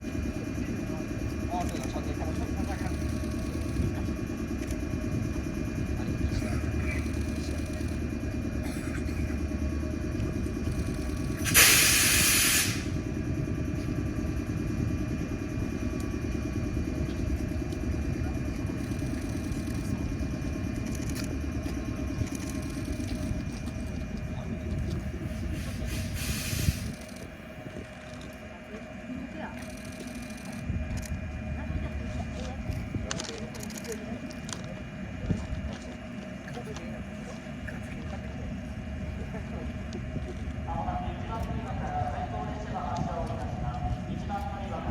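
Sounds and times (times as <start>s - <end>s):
train mechanical rumble: 0.0s - 44.9s
compressed air hissing: 11.4s - 13.0s, 25.5s - 27.1s.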